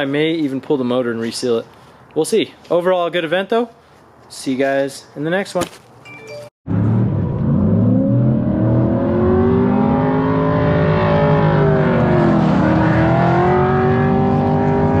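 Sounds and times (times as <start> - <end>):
car engine revving: 6.7 - 15.0.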